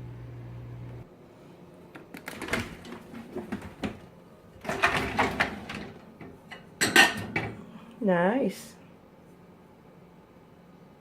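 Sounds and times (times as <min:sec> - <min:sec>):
dishes clinking and knocking: 0:04.6 - 0:07.6.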